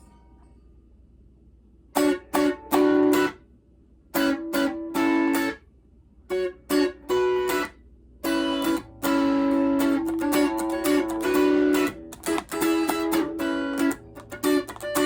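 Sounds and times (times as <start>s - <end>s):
guitar strumming chords: 2.0s - 3.4s, 4.2s - 5.6s, 6.3s - 15.0s.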